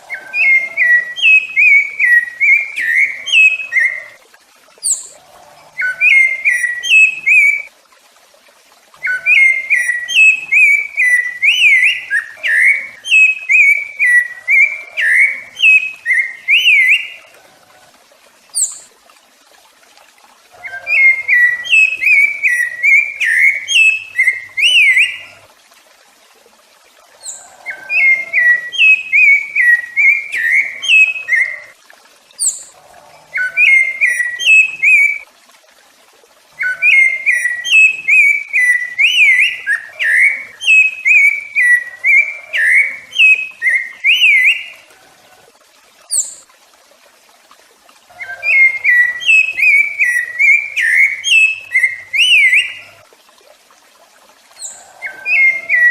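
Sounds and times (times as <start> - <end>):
thrush singing whistled phrases: 0.0 - 4.2, 4.8 - 7.7, 9.0 - 17.3, 20.6 - 25.4, 27.2 - 31.7, 33.3 - 35.2, 36.6 - 44.8, 48.2 - 53.0, 54.6 - 55.9.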